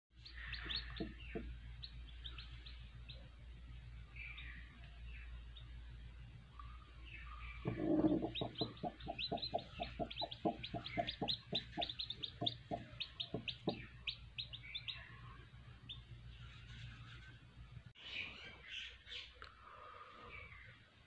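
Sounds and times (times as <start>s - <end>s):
chicks peeping: 0.2s - 3.4s, 7.1s - 17.1s
hen clucking: 0.3s - 2.4s, 7.5s - 15.1s.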